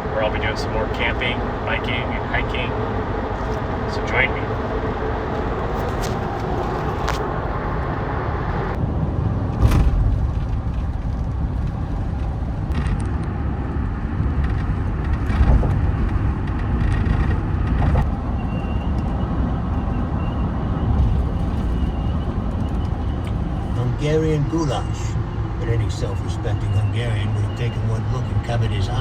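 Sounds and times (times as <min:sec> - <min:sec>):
truck road noise: 0:00.0 - 0:29.0.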